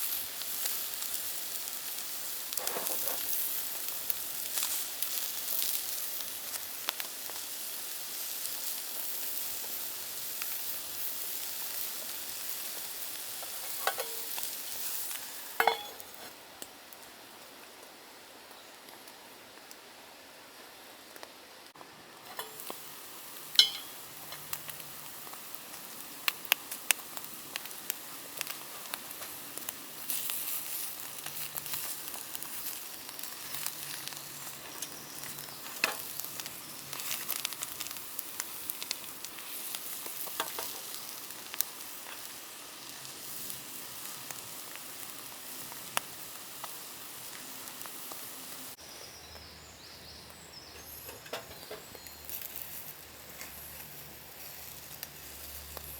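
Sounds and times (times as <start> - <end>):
food sizzling in a pan: 0.0 - 16.6, 22.2 - 55.9
sharp pops of frying: 0.0 - 16.8, 22.2 - 48.7.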